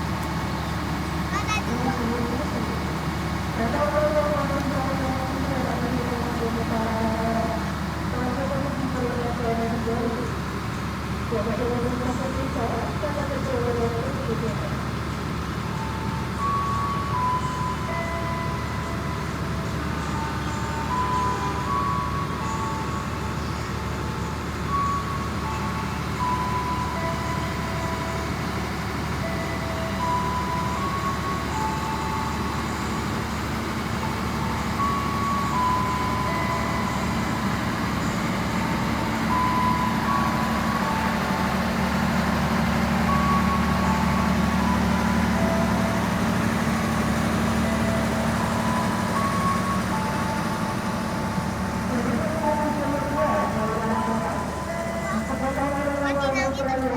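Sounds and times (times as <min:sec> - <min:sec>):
train diesel engine running: 0:00.0 - 0:56.9
slow tune of high tones: 0:15.8 - 0:56.9.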